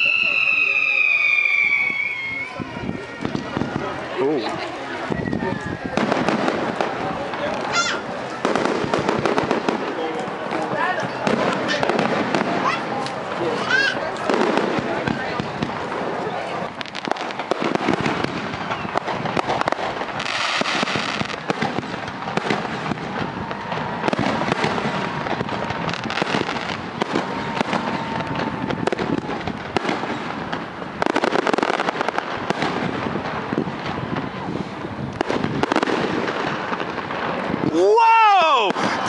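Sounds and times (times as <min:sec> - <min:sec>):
fireworks popping and banging: 0:00.0 - 0:39.0
hissing firework burst: 0:11.2 - 0:37.6, 0:38.7 - 0:39.0.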